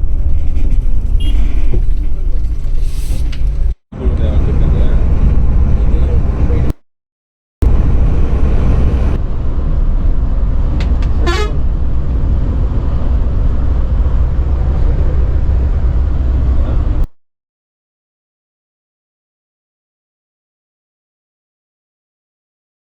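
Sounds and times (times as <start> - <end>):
coach engine and road rumble: 0.0 - 6.8, 7.6 - 17.1
horn toot: 11.2 - 11.6.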